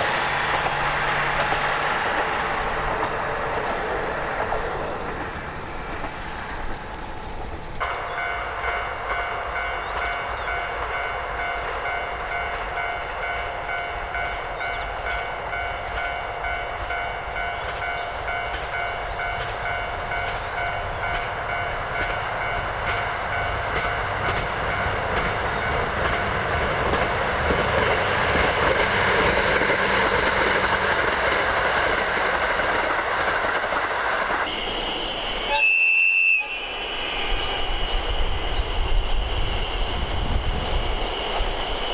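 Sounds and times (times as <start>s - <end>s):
train running: 0.0s - 41.9s
high ringing tones: 7.8s - 27.3s.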